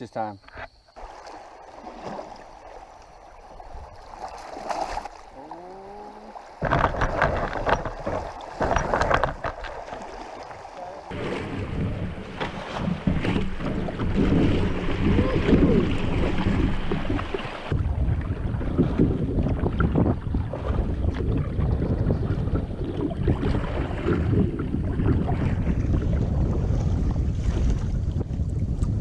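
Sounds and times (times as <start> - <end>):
knocks and water splashes: 1.0 - 29.0
wind buffeting microphone: 11.0 - 29.0.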